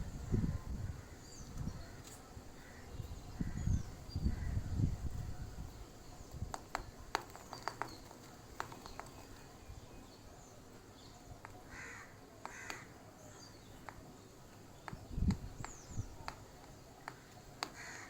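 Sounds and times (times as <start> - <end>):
harsh caw-like bird calls: 2.6 - 4.6, 11.6 - 13.0, 17.1 - 18.0
sharp clicks and taps: 6.5 - 9.4, 13.8 - 14.0, 14.8 - 17.8.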